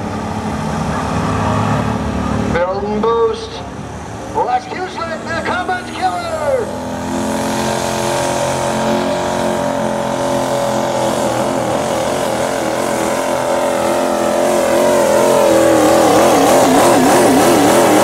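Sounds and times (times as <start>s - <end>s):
diesel truck engine at full throttle: 0.0s - 18.0s.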